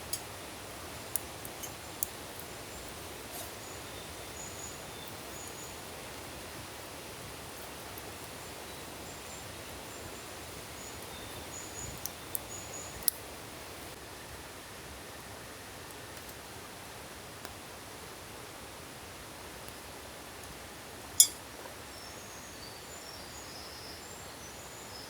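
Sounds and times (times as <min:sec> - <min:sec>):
campfire crackling and popping: 0:00.0 - 0:03.6, 0:11.6 - 0:14.0.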